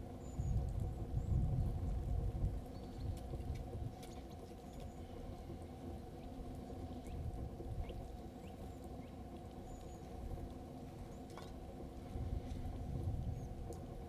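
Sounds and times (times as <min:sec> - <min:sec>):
steady low rumble: 0:00.0 - 0:14.0
small birds chirping: 0:02.6 - 0:05.2, 0:07.8 - 0:10.4.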